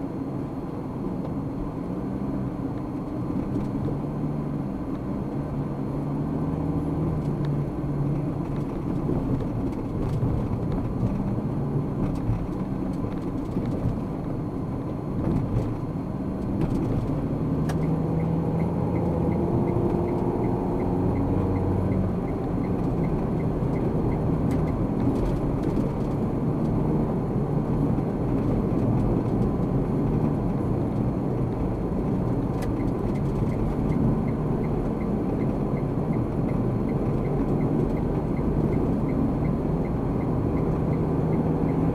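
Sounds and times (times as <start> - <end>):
car engine and tyre noise: 0.0 - 41.9.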